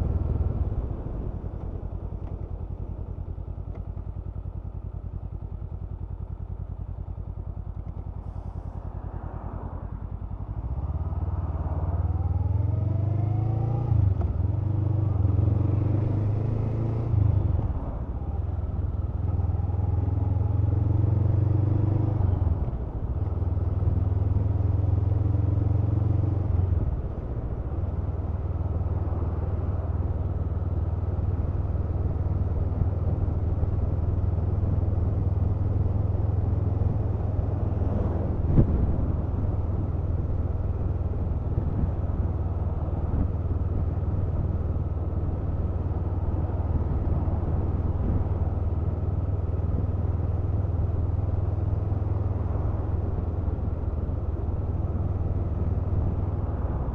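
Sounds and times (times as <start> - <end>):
motorcycle engine running: 0.0 - 15.5
road and wind noise: 0.0 - 56.9.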